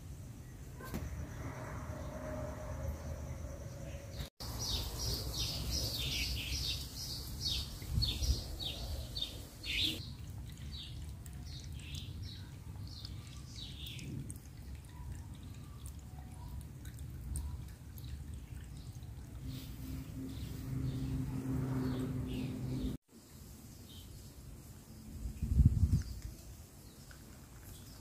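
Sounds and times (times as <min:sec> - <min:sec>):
water trickling over stones: 0:04.4 - 0:08.6, 0:09.2 - 0:19.5, 0:23.1 - 0:28.0.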